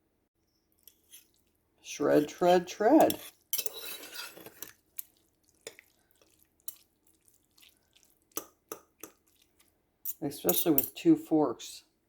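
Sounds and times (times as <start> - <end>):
forks scraping meat and pot: 0.9 - 1.4, 2.1 - 7.7.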